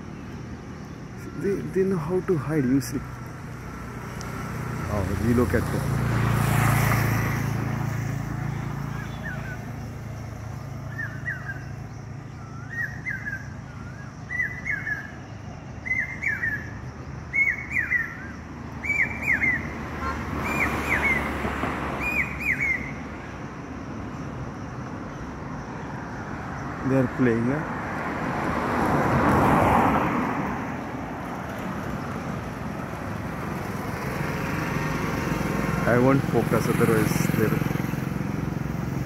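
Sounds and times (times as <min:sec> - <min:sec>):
low traffic hum: 0:00.0 - 0:39.0
bird whistling gliding notes: 0:08.5 - 0:21.4, 0:22.0 - 0:23.0.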